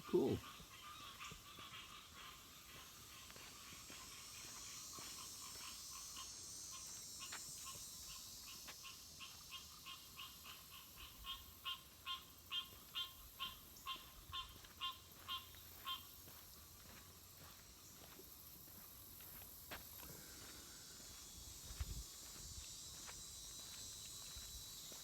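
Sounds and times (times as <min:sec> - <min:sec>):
swamp animals calling in short notes: 0:00.0 - 0:03.7, 0:04.6 - 0:16.1.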